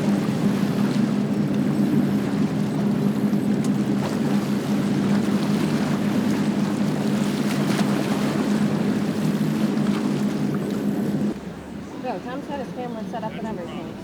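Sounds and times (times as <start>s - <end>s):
motorboat engine running: 0.0s - 14.0s
water rushing: 0.0s - 14.0s.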